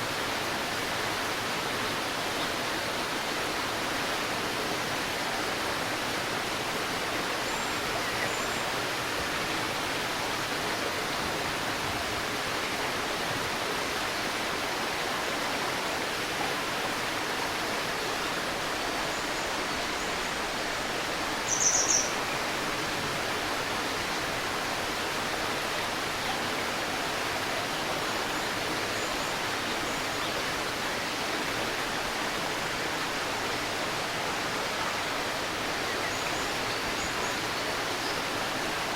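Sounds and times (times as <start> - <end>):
stream babbling: 0.0 - 38.9
faint bird chirps: 21.5 - 22.2.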